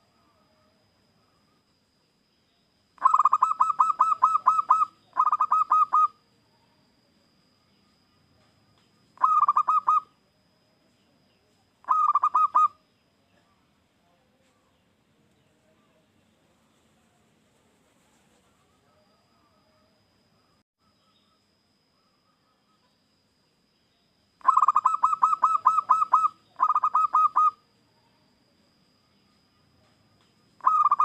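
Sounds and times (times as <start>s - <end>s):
dove cooing: 3.0s - 6.2s, 9.2s - 10.1s, 11.8s - 12.8s, 24.4s - 27.6s, 30.6s - 31.0s.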